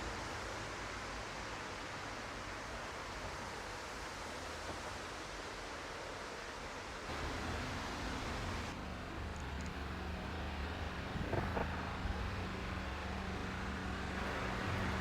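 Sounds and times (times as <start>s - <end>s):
steady rushing noise: 7.1s - 15.0s.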